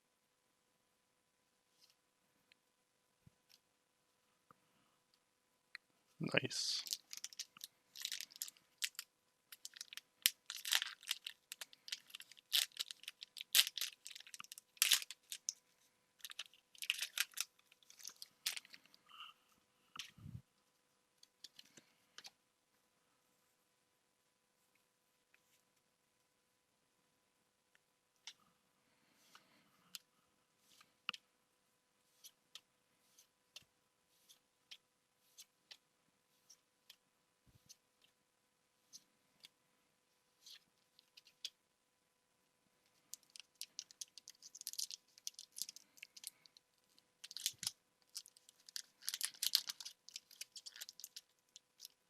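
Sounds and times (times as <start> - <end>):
foil wrappers crinkling and tearing: 6.8 - 9.0, 9.6 - 15.5, 16.2 - 18.9, 43.2 - 46.4, 47.2 - 52.0.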